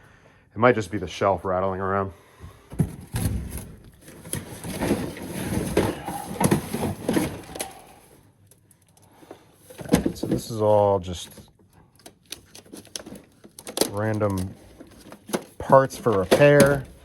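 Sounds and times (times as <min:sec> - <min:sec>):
knocks and rattling inside safe: 0:16.1 - 0:17.0.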